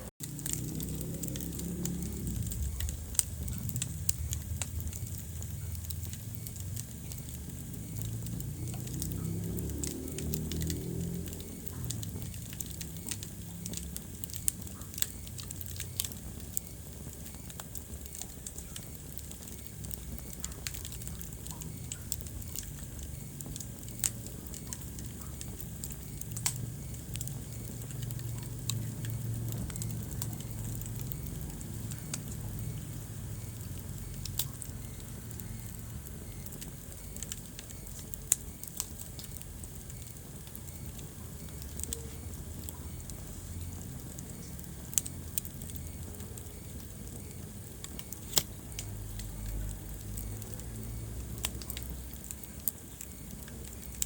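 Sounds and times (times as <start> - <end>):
low rumble: 0.0 - 15.6
wood fire crackling and popping: 0.0 - 54.0.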